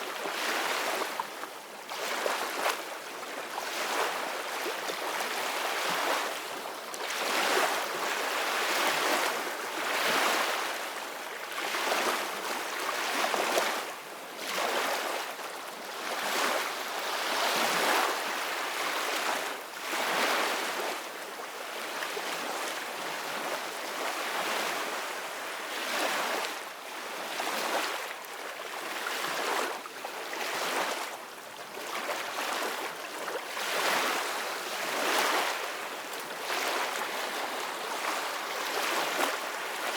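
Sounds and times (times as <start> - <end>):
ocean waves breaking on shore: 31.8 - 39.9.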